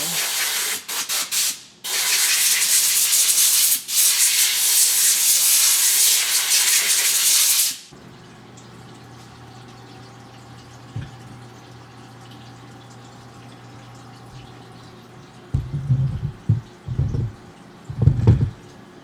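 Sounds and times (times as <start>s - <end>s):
machine low steady hum: 8.0s - 19.0s.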